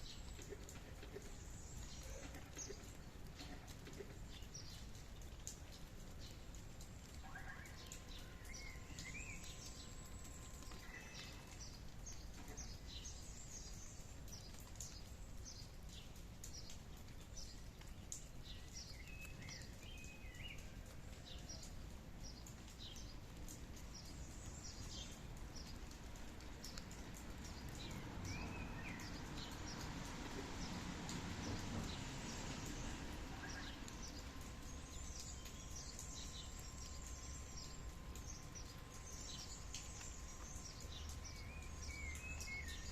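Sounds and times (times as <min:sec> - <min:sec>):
outdoor ambience: 0:00.0 - 0:42.9
wild birds chirping: 0:00.0 - 0:42.9.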